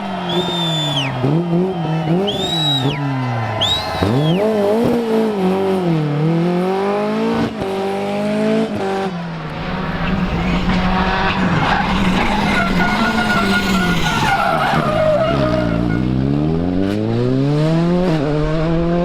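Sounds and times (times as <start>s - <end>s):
tyres skidding: 0.0s - 5.1s, 9.1s - 18.9s
car engine revving: 3.6s - 19.0s.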